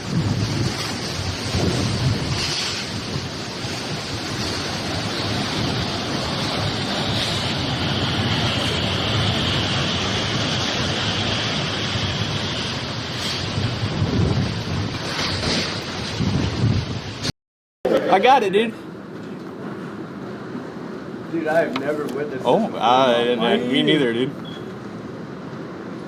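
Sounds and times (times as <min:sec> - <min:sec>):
strong wind blowing on microphone: 0:00.0 - 0:17.3.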